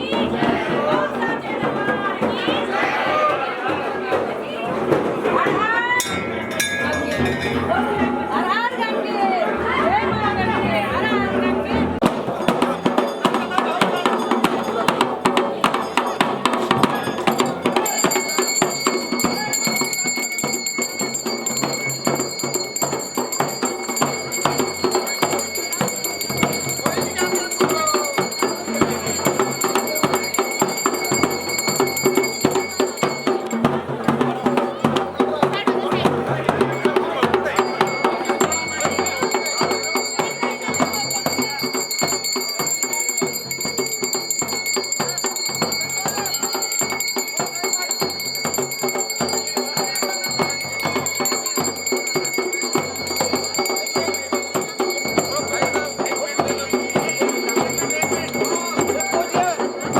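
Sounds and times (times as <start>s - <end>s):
drums in fast steady beat: 0.0s - 59.9s
high ringing tone: 6.0s - 8.7s, 17.4s - 33.6s, 37.6s - 59.9s.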